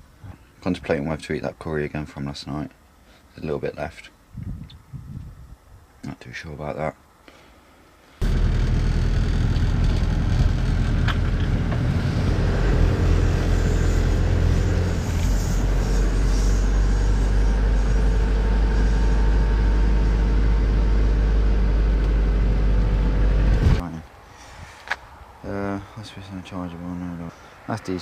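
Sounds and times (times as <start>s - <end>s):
engine and road rumble: 8.2s - 28.0s.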